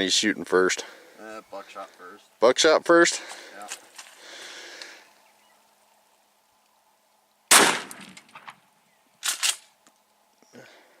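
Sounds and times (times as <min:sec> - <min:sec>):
shotgun firing: 0:07.5 - 0:08.5.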